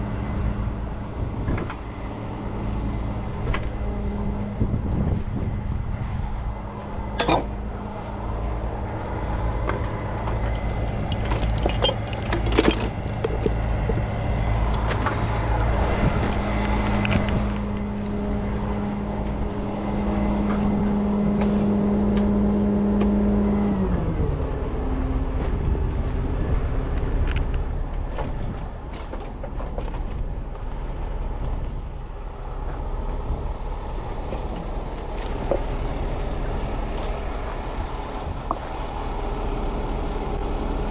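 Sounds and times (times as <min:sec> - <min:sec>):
truck engine running: 0:00.0 - 0:40.9
metal clanks: 0:11.1 - 0:14.0.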